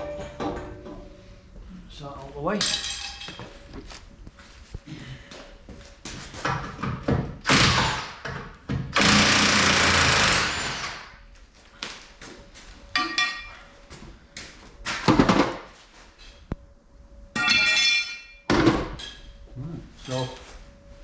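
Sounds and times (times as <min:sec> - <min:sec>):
impact wrench bursts: 0:08.9 - 0:11.1.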